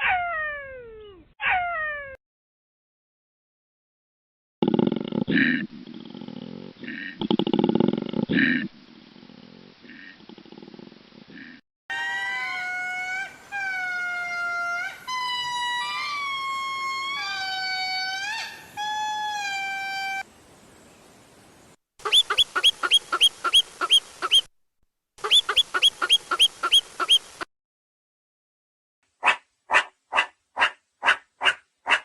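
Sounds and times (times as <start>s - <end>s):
long drawn-out animal calls: 11.2s - 20.2s, 25.2s - 27.5s
rapid pulsed animal calls: 22.0s - 24.5s, 25.2s - 27.5s.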